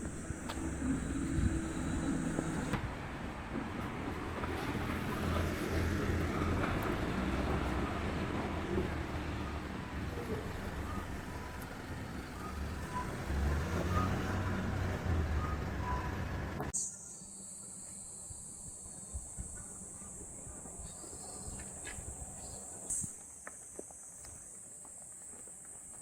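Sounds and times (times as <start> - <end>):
road traffic rumble: 0.0 - 16.8.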